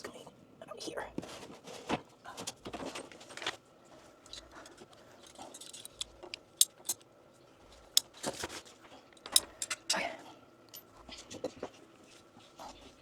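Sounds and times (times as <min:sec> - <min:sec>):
clicks and rattles of small parts: 0:04.3 - 0:07.1, 0:09.2 - 0:10.0.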